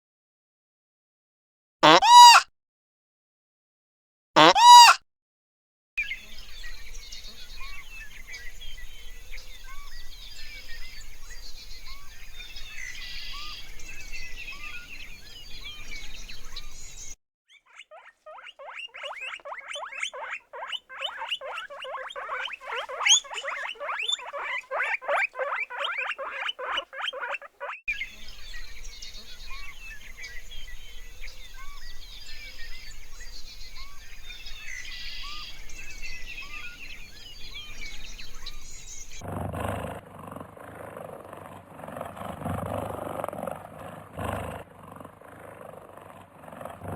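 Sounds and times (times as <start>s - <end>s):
animal harsh pulsing call: 1.8s - 2.4s, 4.4s - 5.0s, 17.6s - 27.8s, 39.3s - 46.9s
small birds chirping: 6.0s - 39.2s
outdoor background: 6.0s - 46.9s.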